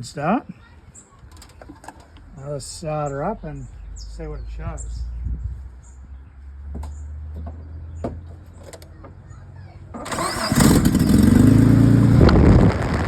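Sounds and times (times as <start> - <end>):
engine cranking and running rough: 10.0 - 13.0.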